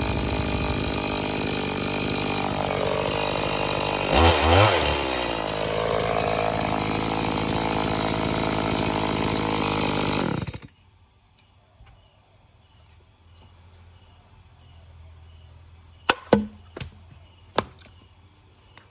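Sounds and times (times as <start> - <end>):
chainsaw engine running: 0.0 - 10.8
insect chirps: 10.7 - 18.9.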